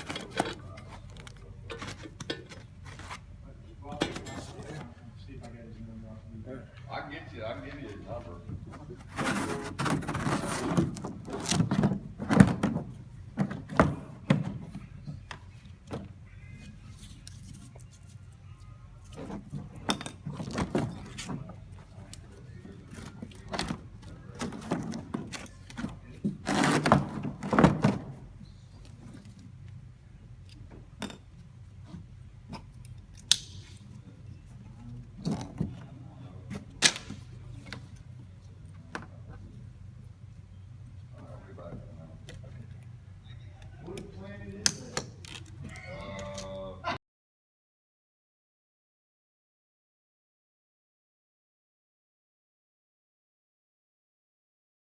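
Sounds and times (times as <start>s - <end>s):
parts knocking into foam case: 9.1s - 14.9s.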